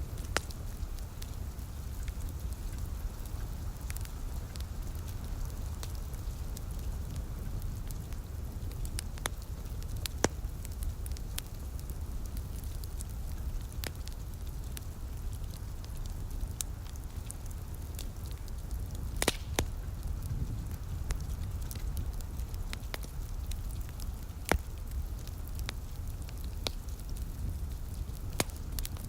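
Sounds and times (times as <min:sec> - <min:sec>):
wood fire crackling: 0:00.0 - 0:29.0
steady low rumble: 0:17.2 - 0:29.0.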